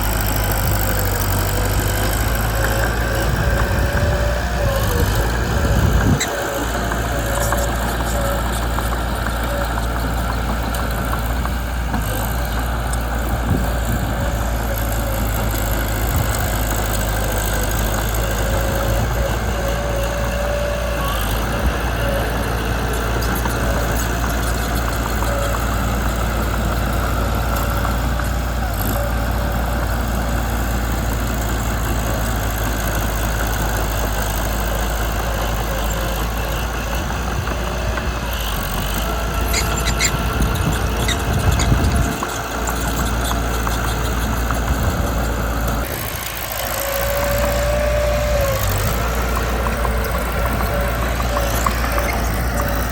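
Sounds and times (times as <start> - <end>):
bulldozer diesel engine running: 0.0 - 52.9.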